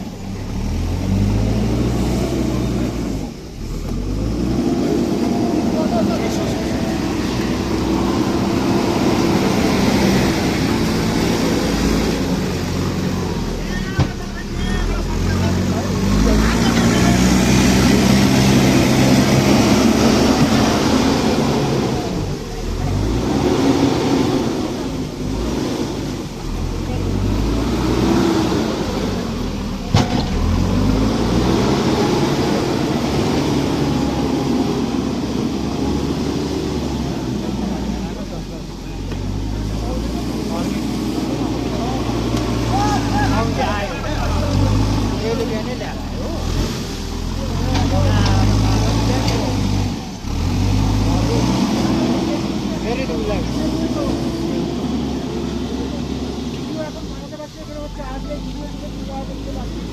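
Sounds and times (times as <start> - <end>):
heavy machinery engine droning: 0.0 - 59.9.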